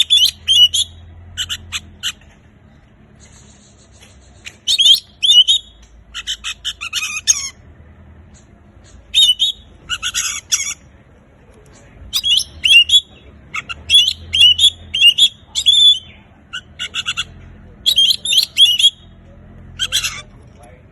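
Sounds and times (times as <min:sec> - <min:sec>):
songbird singing: 0:00.0 - 0:20.7.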